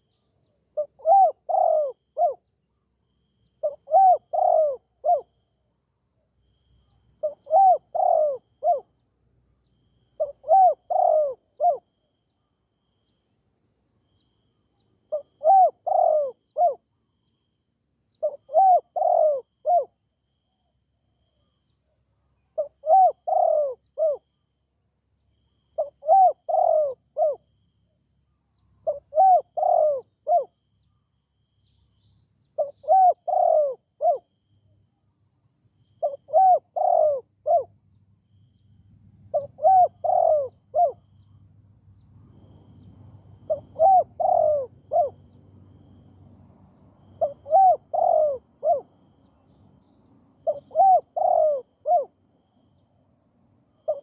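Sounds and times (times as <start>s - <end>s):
dove cooing: 0.8s - 2.4s, 3.6s - 5.3s, 7.2s - 8.9s, 10.2s - 11.9s, 15.1s - 16.8s, 18.2s - 20.0s, 22.6s - 24.2s, 25.8s - 27.4s, 28.8s - 30.5s, 32.6s - 34.3s, 36.0s - 37.7s, 39.3s - 41.0s, 43.4s - 45.3s, 47.1s - 49.2s, 50.4s - 52.2s.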